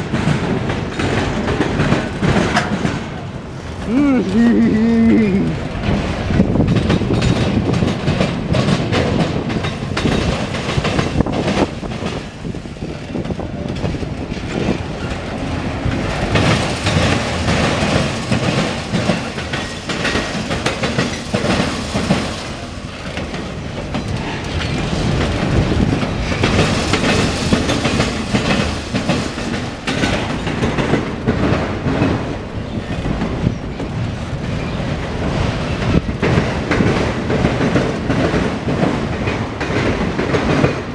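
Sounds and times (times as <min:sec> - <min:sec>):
freight train rumbling past: 0:00.0 - 0:40.9
wheels clicking over rail joints: 0:00.0 - 0:40.9.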